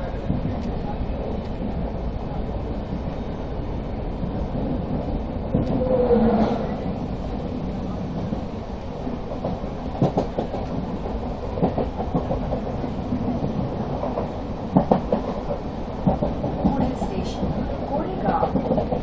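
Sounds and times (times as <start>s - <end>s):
train passing alongside: 0.0s - 19.0s.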